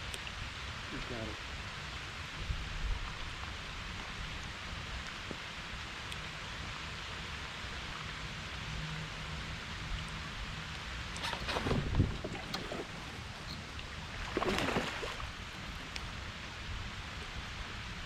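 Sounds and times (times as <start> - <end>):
heavy rain on water and kayak: 0.1 - 18.0.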